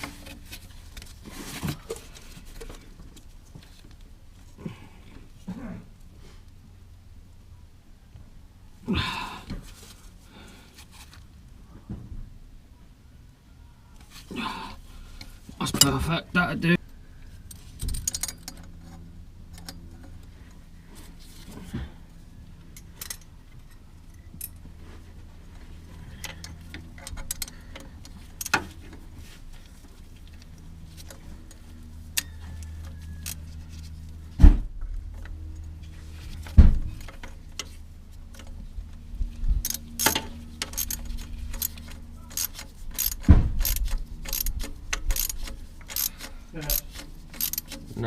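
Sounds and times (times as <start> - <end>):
steady low hum: 0.0 - 48.0
metal tools clinking and knocking: 39.6 - 47.9.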